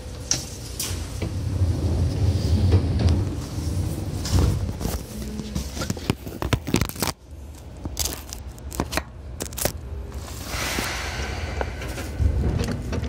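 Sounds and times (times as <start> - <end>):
train car rumbling: 0.0 - 6.4, 9.2 - 13.0
sharp clicks and cracks: 5.9 - 9.8.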